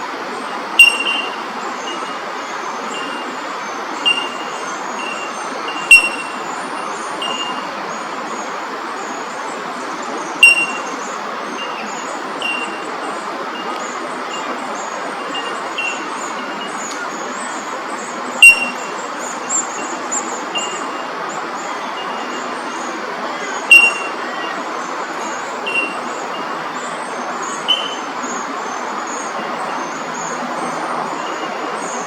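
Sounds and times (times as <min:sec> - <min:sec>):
birds chirping and twittering: 0:00.0 - 0:32.0
loud sharp ringing notes: 0:00.8 - 0:02.2, 0:04.0 - 0:07.7, 0:10.4 - 0:13.0, 0:18.4 - 0:21.1, 0:23.7 - 0:24.6.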